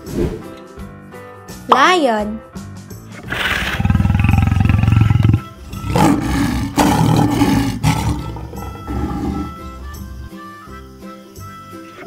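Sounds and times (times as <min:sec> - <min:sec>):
lion roaring: 0:03.2 - 0:10.3.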